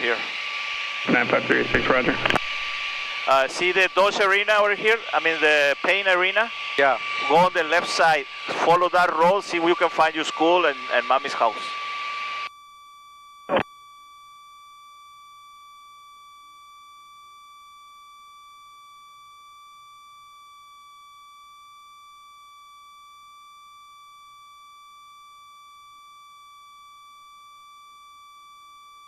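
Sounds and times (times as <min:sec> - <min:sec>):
steady electronic tone: 0:00.0 - 0:12.8.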